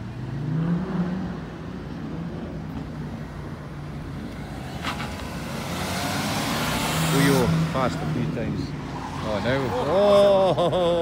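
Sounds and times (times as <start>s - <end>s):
car engine revving: 4.1s - 10.3s.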